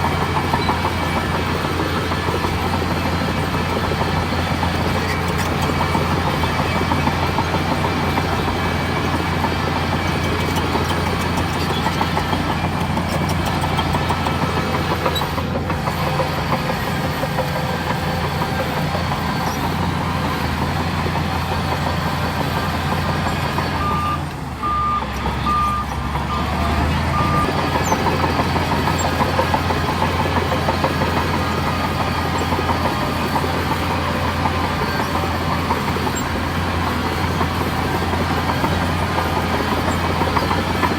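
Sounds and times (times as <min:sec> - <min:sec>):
heavy diesel machinery running: 0:00.0 - 0:40.9
reversing beeps: 0:23.5 - 0:36.4.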